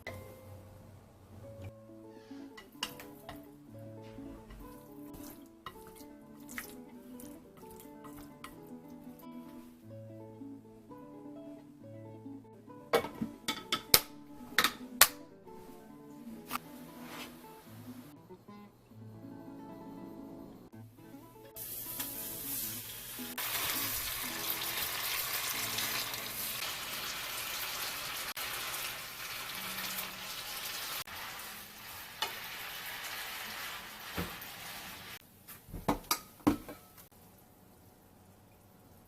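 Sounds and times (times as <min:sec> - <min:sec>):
food sizzling in a hot pan: 0:21.6 - 0:35.2.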